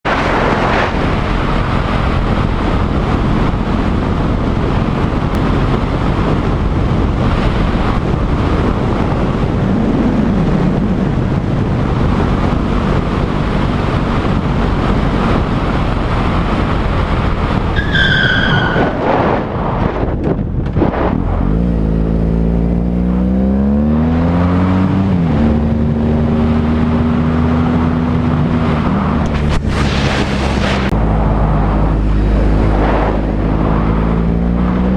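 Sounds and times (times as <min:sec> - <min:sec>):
heavy wind rush: 0:00.0 - 0:22.1, 0:24.7 - 0:34.9
brief high squeal: 0:17.8 - 0:19.1.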